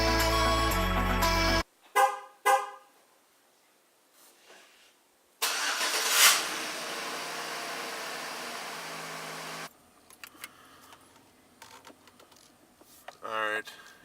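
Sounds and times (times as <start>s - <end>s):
vehicle engine starting and idling: 5.4s - 9.7s.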